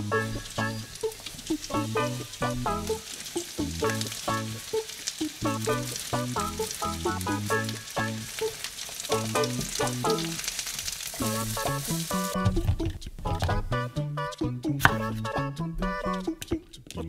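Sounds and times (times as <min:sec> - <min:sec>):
background music: 0:00.0 - 0:10.5, 0:11.2 - 0:17.0
food sizzling in frying pan: 0:00.0 - 0:13.4
spatula turning food: 0:00.0 - 0:13.6.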